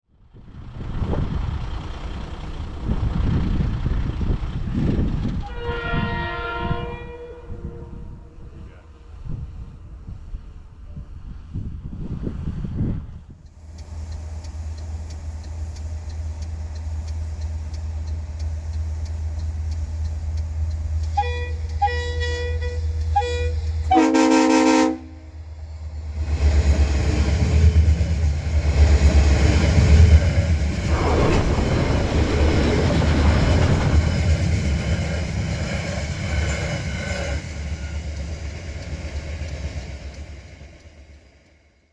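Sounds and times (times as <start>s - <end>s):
train rumbling and clattering: 0.2s - 41.7s
locomotive air horn blast: 5.4s - 8.5s, 21.1s - 25.4s
short horn toots: 21.2s - 25.3s.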